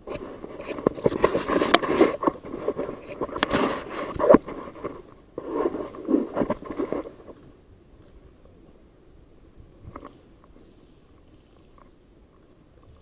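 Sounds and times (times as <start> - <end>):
clothing and gear rustling: 0.0 - 8.2.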